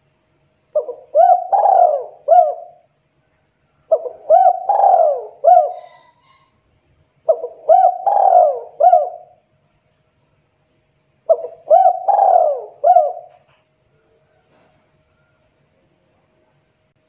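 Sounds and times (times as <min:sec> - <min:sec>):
dove cooing: 0:00.7 - 0:02.9, 0:03.9 - 0:06.5, 0:07.2 - 0:09.4, 0:11.3 - 0:13.5.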